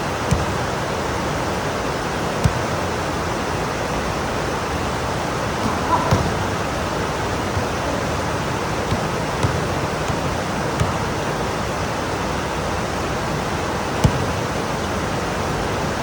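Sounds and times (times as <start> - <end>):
raindrops tapping: 4.7 - 16.0.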